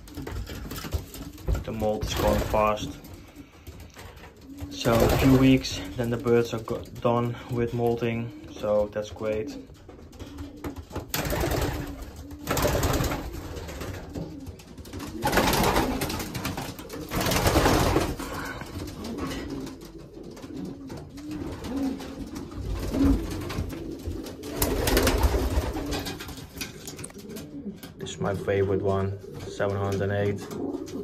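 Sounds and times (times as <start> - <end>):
pigeons cooing: 0.0 - 31.0
loud rustling bursts: 15.0 - 19.0.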